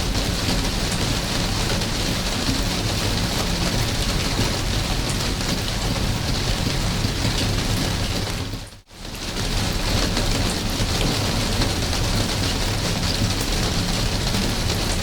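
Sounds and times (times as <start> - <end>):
steady rain patter: 0.0 - 15.0
low rumble: 10.8 - 14.0.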